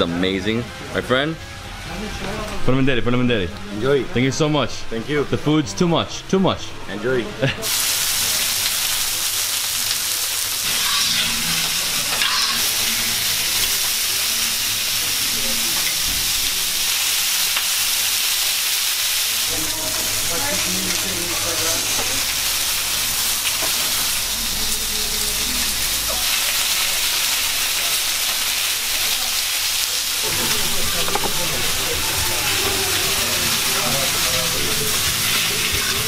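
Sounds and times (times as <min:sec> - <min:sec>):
food sizzling on a griddle: 0:07.2 - 0:36.0.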